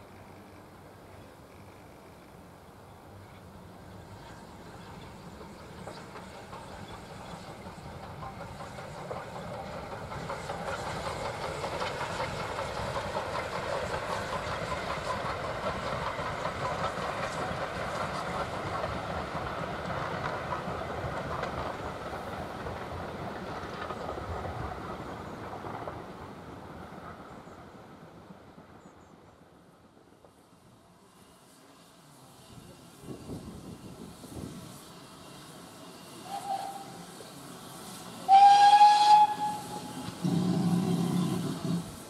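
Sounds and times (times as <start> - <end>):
train wheels clattering over rail joints: 4.1 - 27.5, 32.7 - 42.0.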